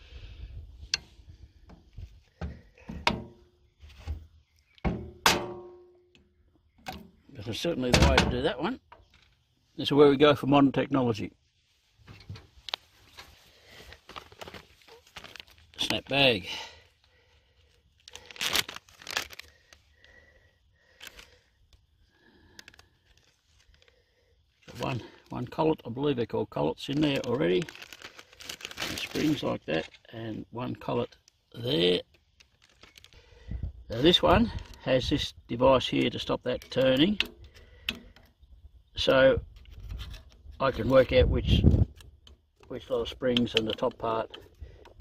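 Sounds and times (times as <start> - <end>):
plastic bag crinkling: 13.5 - 16.2, 18.0 - 20.2, 20.8 - 21.4, 26.8 - 30.0, 32.3 - 33.3
small clicks of bag seal: 13.8 - 16.0, 18.0 - 20.2, 20.8 - 24.0, 26.9 - 30.1, 32.1 - 33.3.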